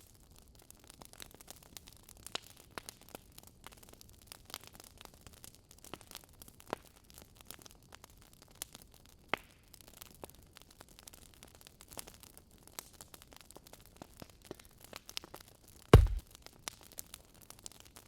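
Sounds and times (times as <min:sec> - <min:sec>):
wood fire crackling: 0:16.0 - 0:16.2.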